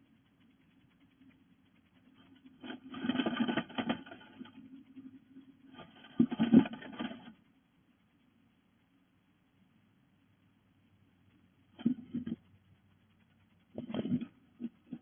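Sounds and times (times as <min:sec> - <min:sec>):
faint low hum: 0:00.0 - 0:15.0
bird claws scratching nest material: 0:02.3 - 0:05.1, 0:05.7 - 0:07.4.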